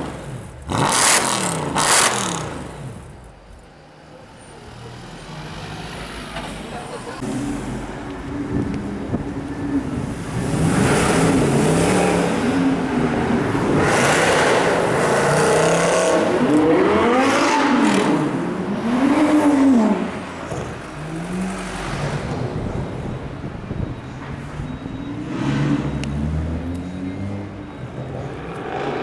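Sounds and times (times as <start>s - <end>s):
car engine revving: 0.0s - 3.2s, 9.8s - 22.8s.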